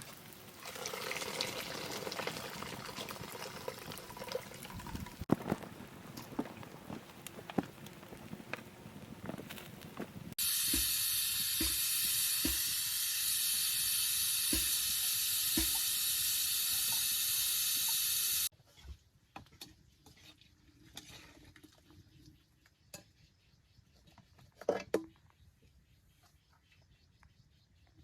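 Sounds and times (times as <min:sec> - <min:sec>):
food sizzling in hot oil: 0:10.4 - 0:18.5.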